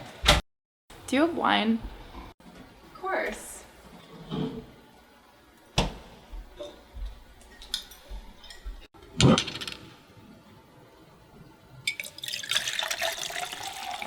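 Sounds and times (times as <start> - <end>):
glassware and dishes clinking: 6.6 - 6.8, 7.5 - 8.9.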